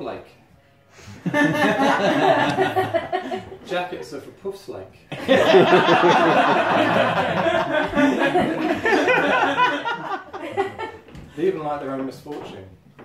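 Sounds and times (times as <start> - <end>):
audience laughing: 1.2 - 4.0, 5.1 - 11.1.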